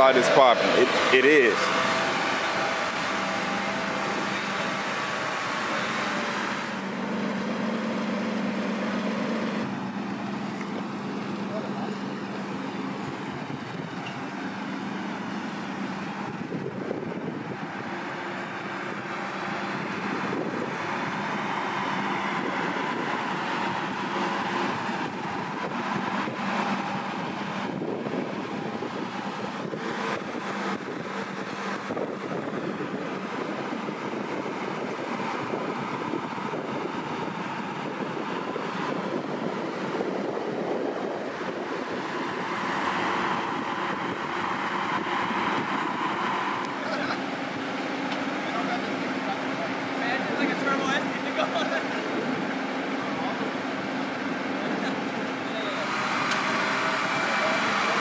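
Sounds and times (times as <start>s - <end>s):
wind buffeting microphone: 0.0s - 51.0s, 51.9s - 58.0s
car engine idling at low revs: 7.0s - 41.5s.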